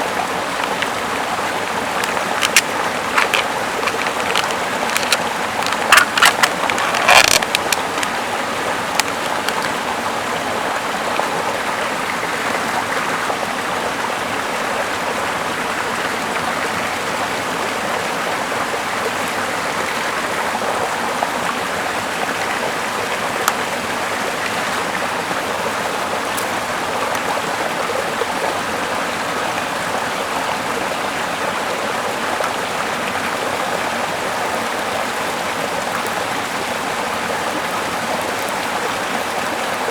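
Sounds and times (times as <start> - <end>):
river flowing over rocks: 0.0 - 39.9
sharp clicks and snaps: 0.5 - 9.8.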